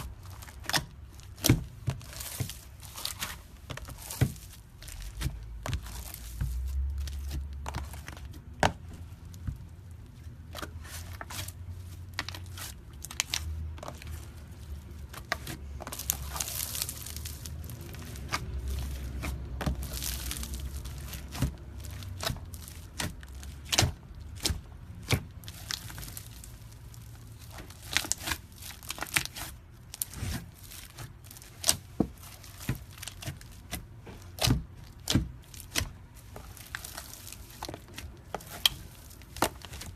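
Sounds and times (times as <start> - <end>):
low handling rumble: 11.6 - 27.9
slime squishing and popping: 12.1 - 39.9.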